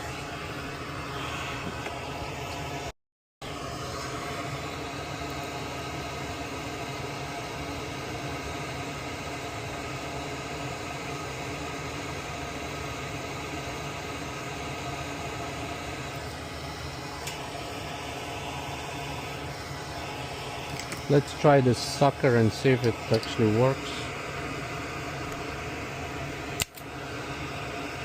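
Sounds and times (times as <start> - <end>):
machine hum with hiss: 0.0 - 28.0.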